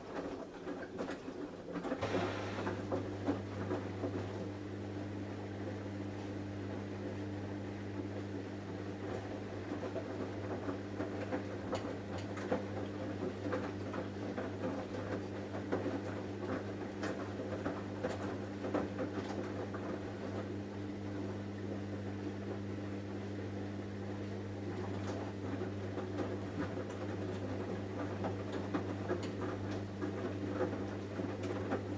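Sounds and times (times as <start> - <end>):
water tumbling in drum: 0.0 - 4.4
wet load clicks and patter: 0.0 - 4.5, 9.0 - 20.5, 24.6 - 31.9
washing machine humming: 0.0 - 31.9.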